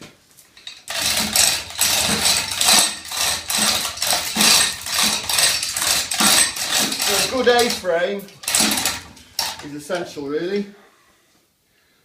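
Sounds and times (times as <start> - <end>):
hoist chain rattling and clinking: 0.5 - 9.9.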